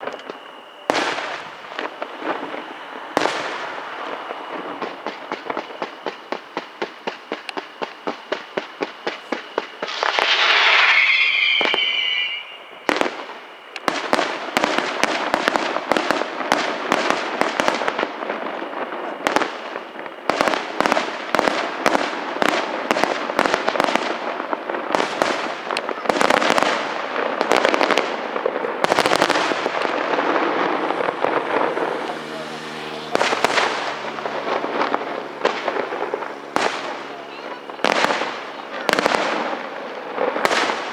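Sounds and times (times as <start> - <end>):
fireworks bangs: 0.0 - 40.9
fireworks crackling: 0.0 - 40.9
whistling firework shriek: 7.3 - 15.4, 25.0 - 39.7.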